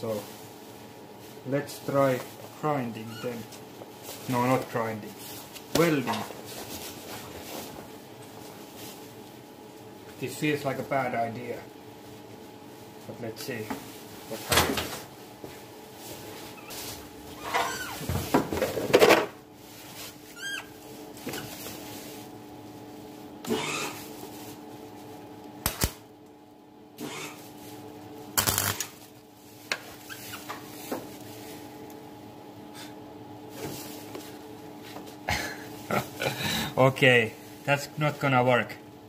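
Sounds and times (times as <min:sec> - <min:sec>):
welding bursts: 0:25.6 - 0:26.0, 0:28.4 - 0:29.0.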